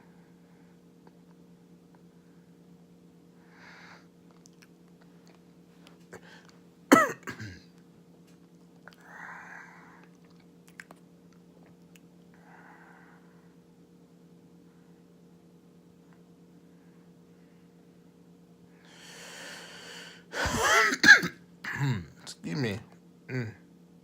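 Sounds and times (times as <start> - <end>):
steady low hum: 0.0 - 24.0
soft breaths: 3.3 - 4.2, 12.3 - 13.7, 16.5 - 18.1
person coughing: 6.9 - 7.7, 20.4 - 22.1.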